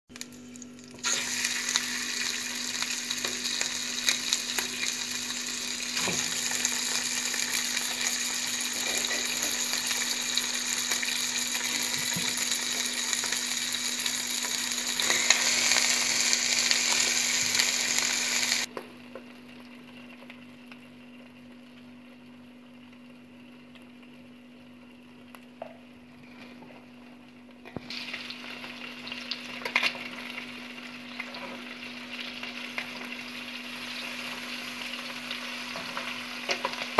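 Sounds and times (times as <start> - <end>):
chicken sizzling in hot oil: 0.1 - 18.7, 26.3 - 36.9.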